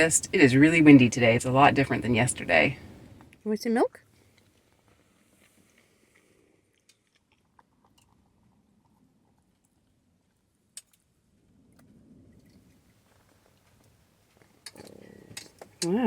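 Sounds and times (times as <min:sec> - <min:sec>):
faint clicks and knocks of eating: 0:05.4 - 0:11.1, 0:13.5 - 0:16.0.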